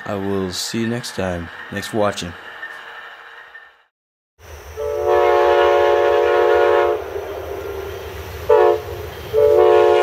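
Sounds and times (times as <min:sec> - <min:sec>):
locomotive horn blasts: 0:04.8 - 0:07.1, 0:08.5 - 0:10.0.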